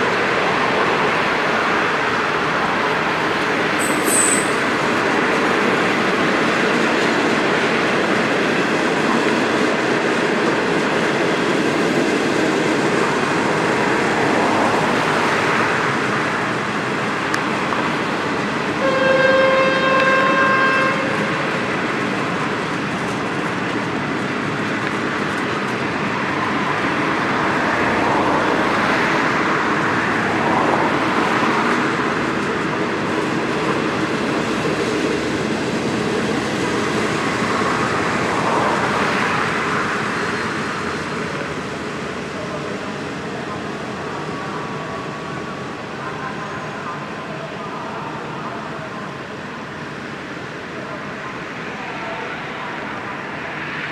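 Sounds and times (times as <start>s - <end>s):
train rumbling on rails: 0.0s - 53.9s
train horn blast: 18.8s - 21.6s.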